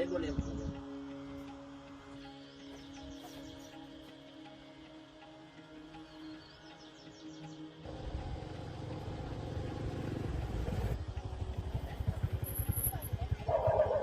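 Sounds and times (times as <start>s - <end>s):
motorcycle engine running: 7.8s - 14.0s.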